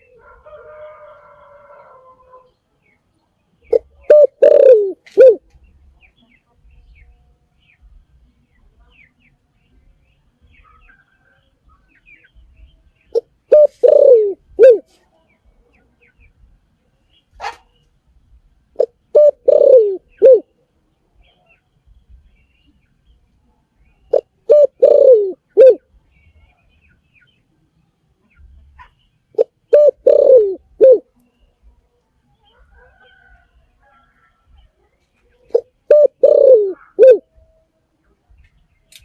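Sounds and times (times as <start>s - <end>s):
dove cooing: 3.7s - 5.5s, 13.1s - 14.9s, 18.8s - 20.5s, 24.1s - 25.9s, 28.8s - 31.1s, 35.4s - 37.4s.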